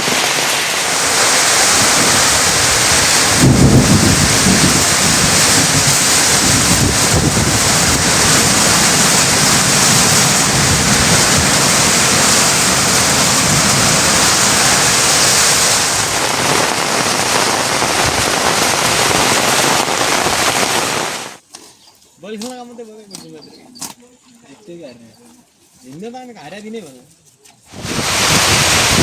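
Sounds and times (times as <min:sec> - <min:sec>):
heavy rain pouring: 0:00.0 - 0:21.4, 0:27.7 - 0:29.0
low thunder rumble: 0:01.7 - 0:18.4.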